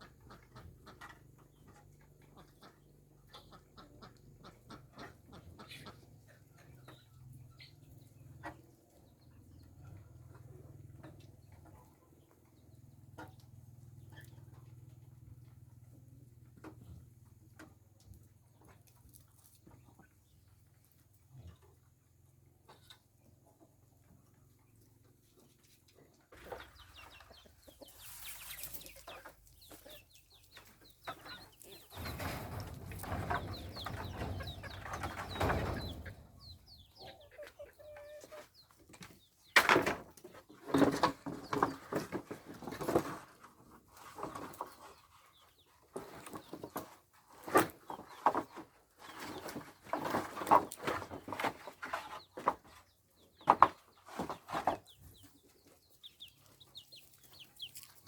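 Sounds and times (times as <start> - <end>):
chickens clucking: 0.0 - 58.0
rustling: 31.5 - 36.7.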